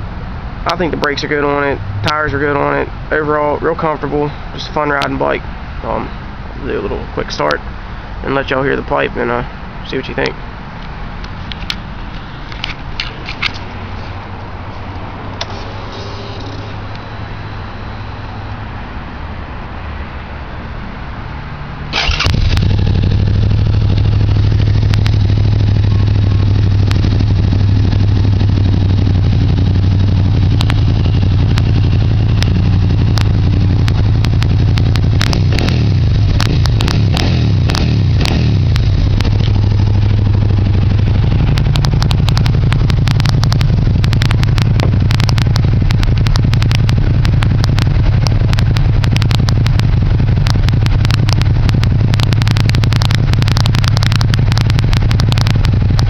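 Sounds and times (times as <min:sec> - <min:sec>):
exhaust crackling: 0:11.2 - 0:18.6, 0:21.8 - 0:56.0
motorcycle engine idling: 0:15.3 - 0:17.8, 0:22.0 - 0:56.0.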